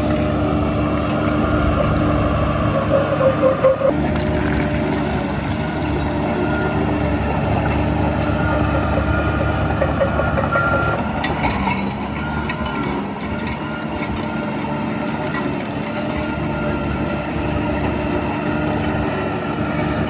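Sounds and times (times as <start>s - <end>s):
heavy diesel machinery running: 0.0s - 20.0s
high squeal: 1.2s - 4.0s.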